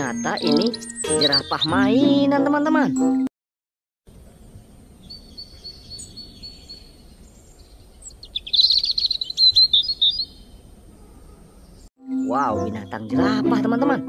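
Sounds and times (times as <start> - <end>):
birds singing: 0.0 - 3.0, 4.2 - 13.8
low outdoor ambience: 4.1 - 13.8.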